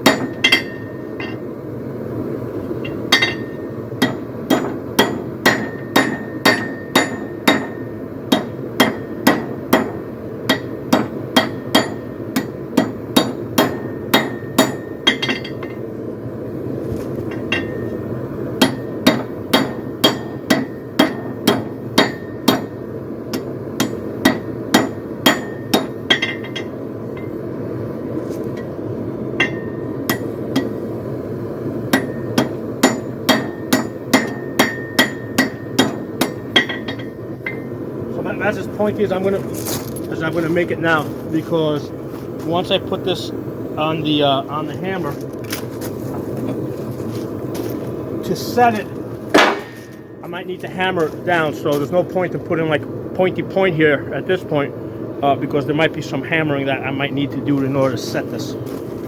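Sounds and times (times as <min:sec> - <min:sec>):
hammer striking steel: 0:00.0 - 0:01.5, 0:02.8 - 0:15.8, 0:17.3 - 0:18.0, 0:18.6 - 0:27.4, 0:29.4 - 0:30.8, 0:31.9 - 0:37.8, 0:48.7 - 0:50.2.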